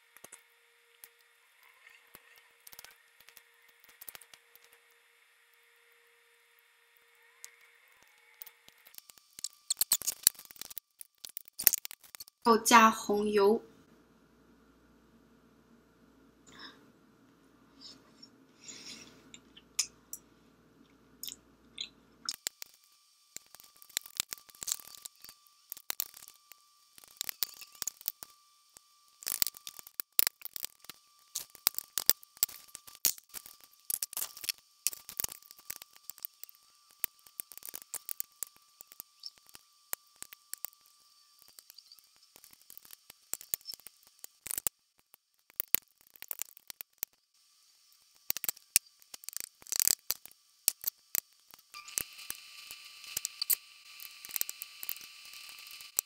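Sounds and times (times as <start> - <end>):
wet chewing mouth clicks: 21.2 - 22.6.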